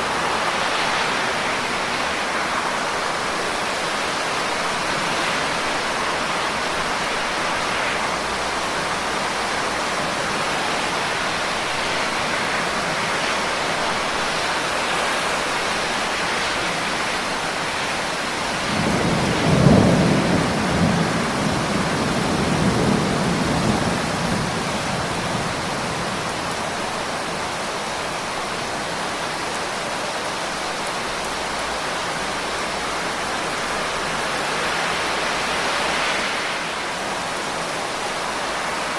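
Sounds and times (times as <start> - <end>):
heavy rain falling: 0.0 - 38.9
thunder rumbling: 18.6 - 26.5.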